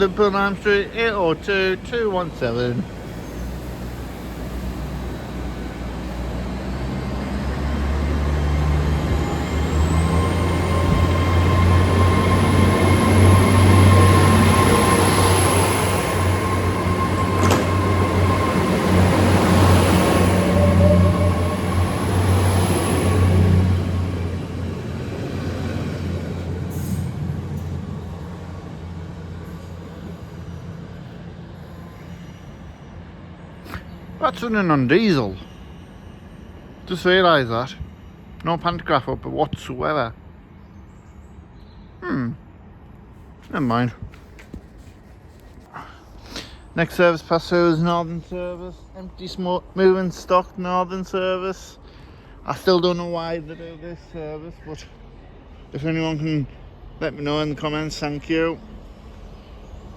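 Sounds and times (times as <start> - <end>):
train diesel engine hum: 0.0 - 59.9
high whine rising in pitch: 8.1 - 25.0.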